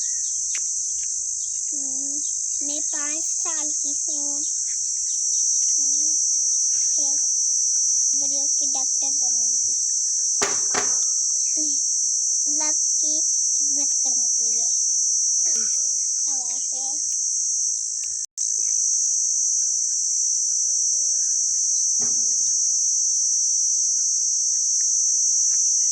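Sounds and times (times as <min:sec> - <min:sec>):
short pitched calls: 0:00.0 - 0:14.8
shrill insect chorus: 0:00.0 - 0:25.9.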